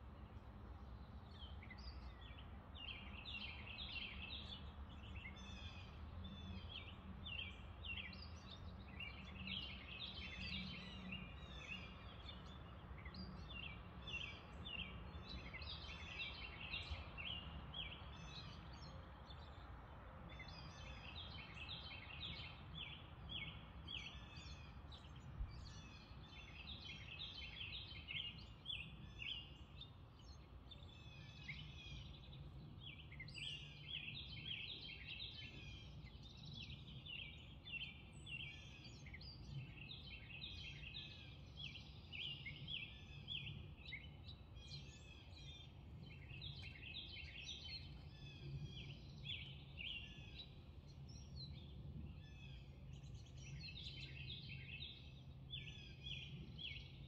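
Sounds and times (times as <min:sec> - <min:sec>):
birds chirping: 0:20.3 - 0:57.0.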